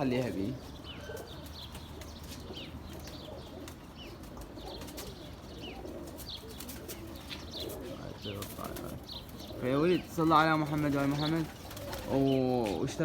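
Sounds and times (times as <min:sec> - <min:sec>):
pigeons cooing: 0:00.0 - 0:13.0
wing flaps: 0:10.6 - 0:12.4.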